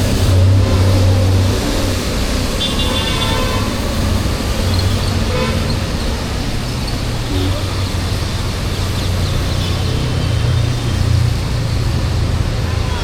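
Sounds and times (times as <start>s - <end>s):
road traffic: 0.0s - 13.0s
vehicle horn toot: 2.6s - 3.8s, 5.3s - 5.8s.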